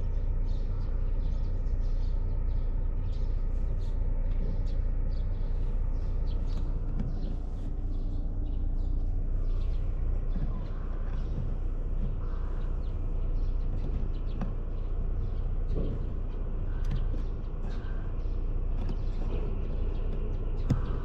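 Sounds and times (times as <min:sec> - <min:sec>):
faint bird calls: 0:00.0 - 0:21.0
low outdoor rumble: 0:00.0 - 0:21.0.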